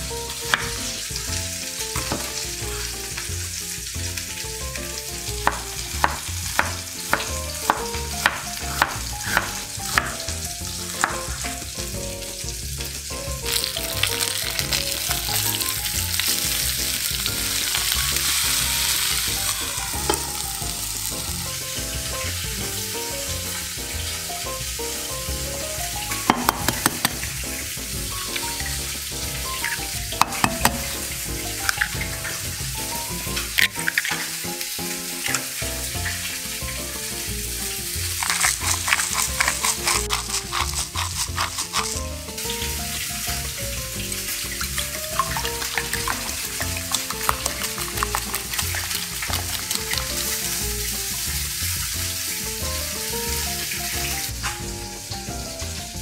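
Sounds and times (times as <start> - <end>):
chicken sizzling in frying pan: 0.0 - 56.0
eggshell cracking taps: 0.5 - 0.9, 2.0 - 2.4, 5.4 - 11.9, 13.5 - 20.8, 26.1 - 27.4, 29.6 - 32.4, 33.3 - 34.4, 35.2 - 36.2, 38.0 - 42.0, 44.6 - 50.4
knife chopping on wooden board: 2.0 - 2.4, 5.4 - 11.5, 26.3 - 27.4, 30.2 - 30.9.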